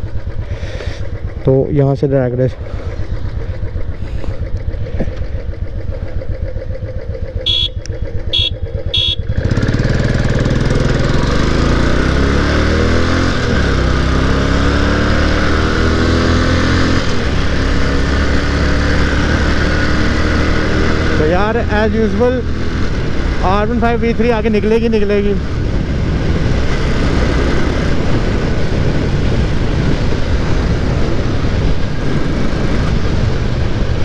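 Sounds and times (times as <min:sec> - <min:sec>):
motorcycle engines revving: 0:00.0 - 0:34.0
short high beeps: 0:07.5 - 0:09.2.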